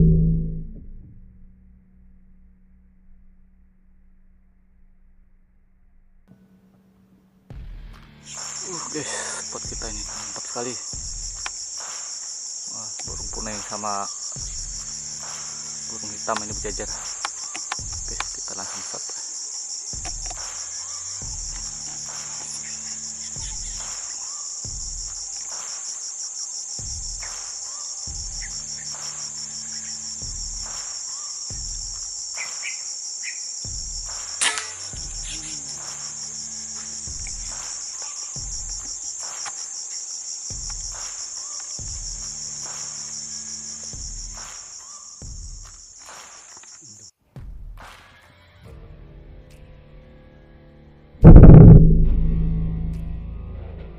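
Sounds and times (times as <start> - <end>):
high-pitched insect chorus: 8.2 - 47.1
gunshot crack: 34.4 - 34.9, 51.2 - 52.6.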